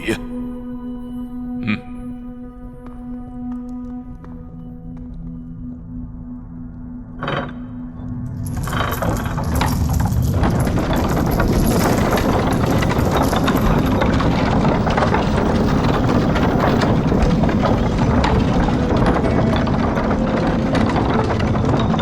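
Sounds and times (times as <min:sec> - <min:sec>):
dense clattering rumble: 0:07.2 - 0:22.0.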